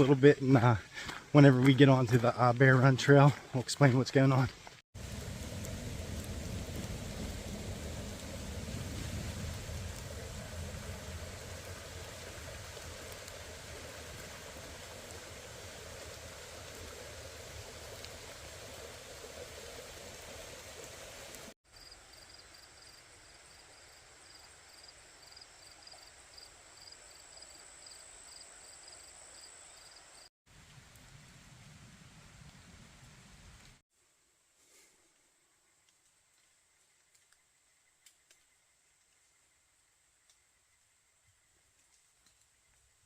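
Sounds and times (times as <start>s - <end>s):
steady rushing noise: 5.0s - 15.4s.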